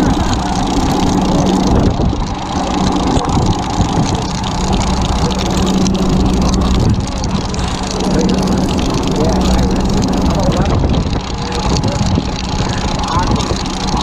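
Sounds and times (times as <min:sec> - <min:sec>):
boat engine idling: 0:00.0 - 0:14.0
water noise: 0:00.0 - 0:14.0
wind noise: 0:00.0 - 0:14.0.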